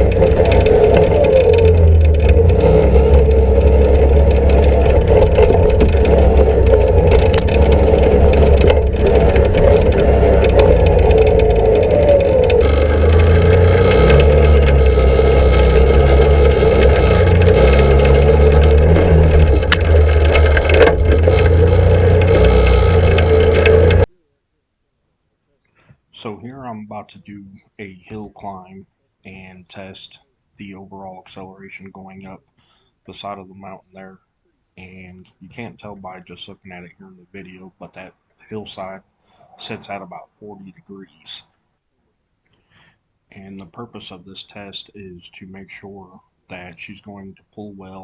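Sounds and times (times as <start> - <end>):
atv engine running: 0.0 - 24.1
rattling and knocks: 0.0 - 24.1.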